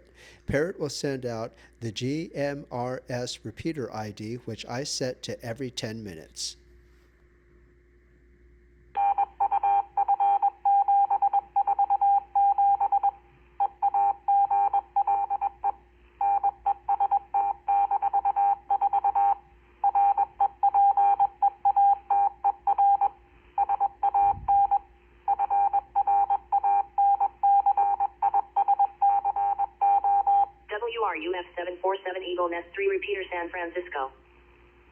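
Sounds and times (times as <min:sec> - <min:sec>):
morse code beep tone: 0:09.0 - 0:30.5.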